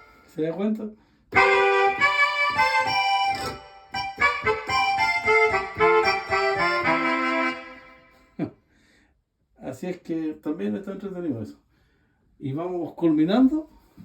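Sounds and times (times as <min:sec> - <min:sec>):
keyboard saxophone and accordion melody: 0:00.0 - 0:00.6, 0:01.3 - 0:08.4.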